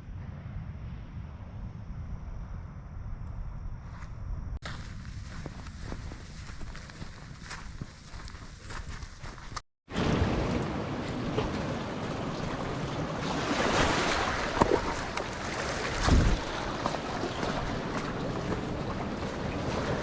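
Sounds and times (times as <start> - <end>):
wind buffeting microphone: 0.0 - 20.0
sea surf on rocky shore: 9.9 - 20.0.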